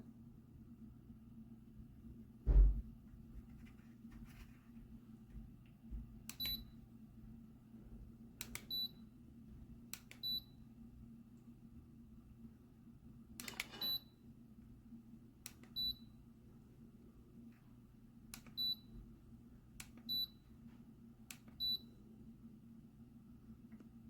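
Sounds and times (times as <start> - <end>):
humidifier humming: 0.0 - 24.0
button clicks: 13.4 - 14.0.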